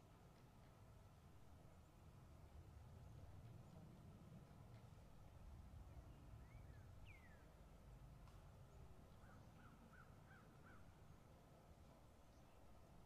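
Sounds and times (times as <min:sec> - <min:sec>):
distant bird calls: 0:06.0 - 0:07.6, 0:08.7 - 0:11.0.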